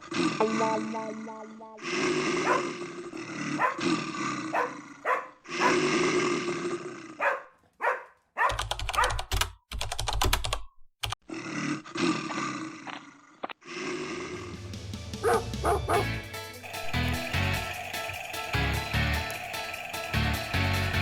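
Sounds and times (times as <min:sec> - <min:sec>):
dog barking and growling: 0:01.8 - 0:09.3, 0:15.2 - 0:21.0
noisy background: 0:16.6 - 0:21.0
rapid sharp clicks: 0:16.6 - 0:21.0.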